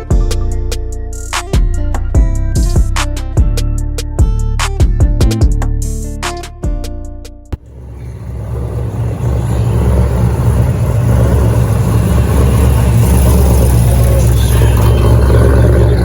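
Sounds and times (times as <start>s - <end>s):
car engine exhaust rumble: 7.6s - 16.0s.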